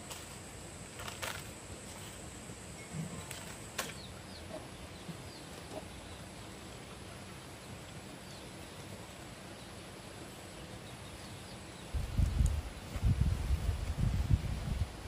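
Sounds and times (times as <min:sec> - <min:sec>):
background hiss: 0:00.0 - 0:15.0
faint bird chirps: 0:02.7 - 0:06.7.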